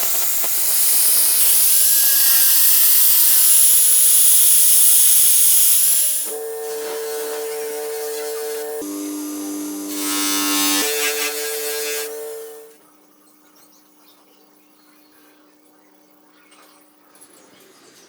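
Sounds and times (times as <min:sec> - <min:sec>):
electric power tool buzzing: 0:00.0 - 0:12.8
harsh hiss: 0:00.0 - 0:12.8.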